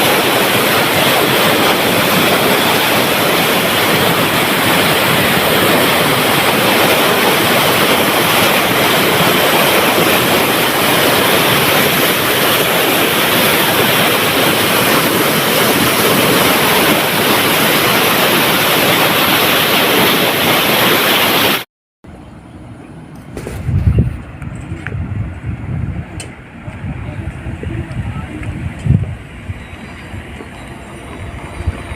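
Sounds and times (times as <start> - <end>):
water rushing through spillway: 0.0 - 21.6.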